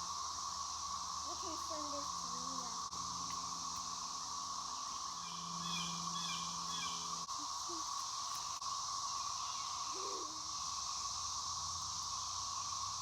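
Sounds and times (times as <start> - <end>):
cicadas droning: 0.0 - 13.0
bird chirps: 4.8 - 8.6.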